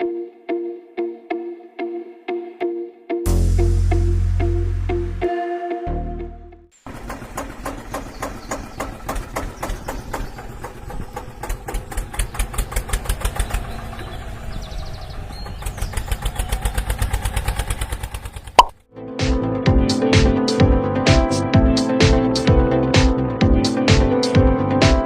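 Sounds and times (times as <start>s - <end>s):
engine chugging: 6.8s - 18.7s.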